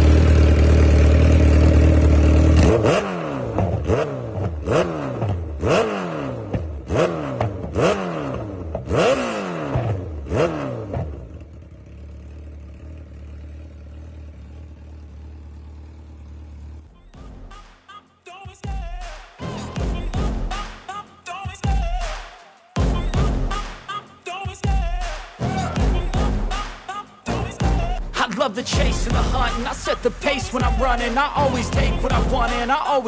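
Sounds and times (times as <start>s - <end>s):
motorcycle engine revving and idling: 0.0s - 17.6s, 28.7s - 33.0s.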